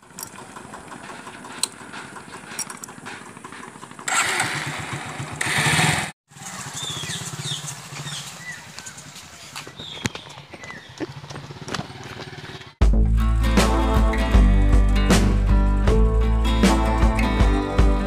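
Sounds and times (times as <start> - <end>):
motorcycle engine starting and revving: 0.0 - 12.8
motorcycle engine running steadily: 0.0 - 13.0
birds chirping: 6.4 - 12.8.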